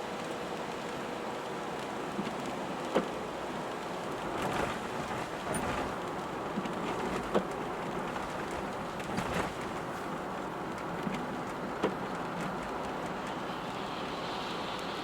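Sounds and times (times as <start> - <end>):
rain hissing on moving car: 0.0 - 15.0
road noise: 5.2 - 15.0.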